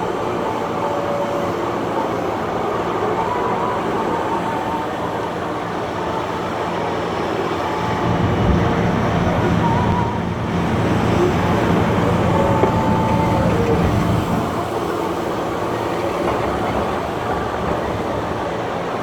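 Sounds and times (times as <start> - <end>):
diesel engine running hard: 7.2 - 19.0.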